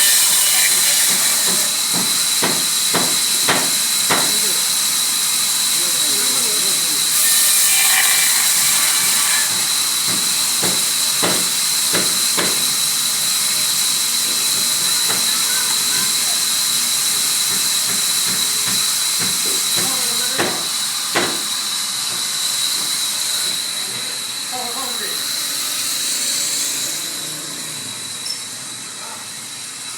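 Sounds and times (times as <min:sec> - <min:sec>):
sawmill saw cutting wood: 0:00.0 - 0:29.9
sharp knocks: 0:01.4 - 0:04.4, 0:17.9 - 0:21.5.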